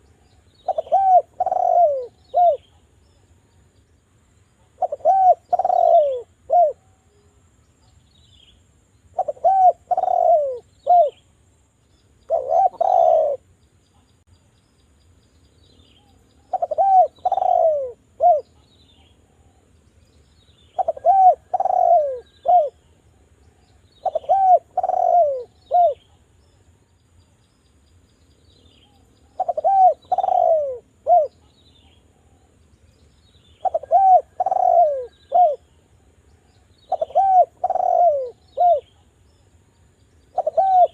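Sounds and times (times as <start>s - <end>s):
collared dove cooing: 0.6s - 2.8s, 4.6s - 7.3s, 9.1s - 11.2s, 12.3s - 13.5s, 16.4s - 19.6s, 20.7s - 22.9s, 23.6s - 26.2s, 28.8s - 32.4s, 33.6s - 35.7s, 36.8s - 39.1s, 40.3s - 40.9s.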